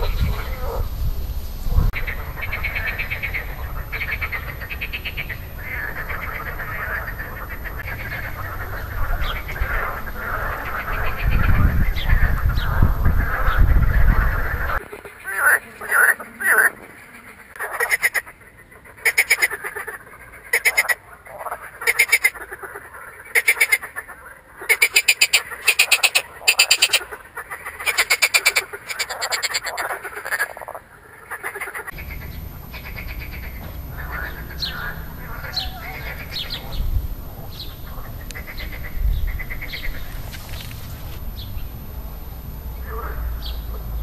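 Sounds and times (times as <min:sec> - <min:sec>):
frogs croaking: 0:00.0 - 0:44.0
low rumble: 0:32.0 - 0:44.0.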